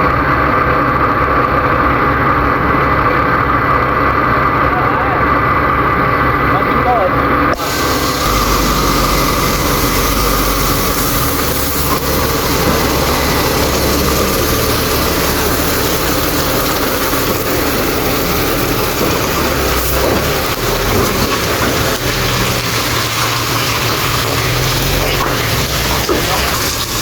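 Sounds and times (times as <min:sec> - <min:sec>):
heavy diesel engine running: 0:00.0 - 0:27.0
dense hiss: 0:07.6 - 0:27.0.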